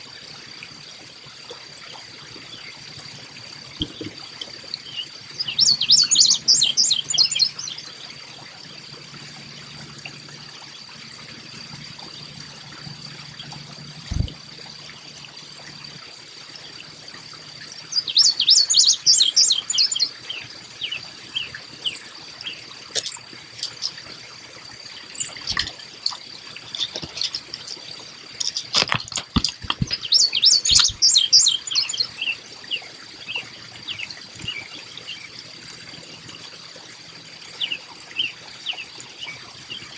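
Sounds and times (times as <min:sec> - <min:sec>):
water trickling: 0:00.0 - 0:39.9
chickadee calling: 0:04.8 - 0:07.8, 0:17.9 - 0:24.1, 0:25.0 - 0:34.6.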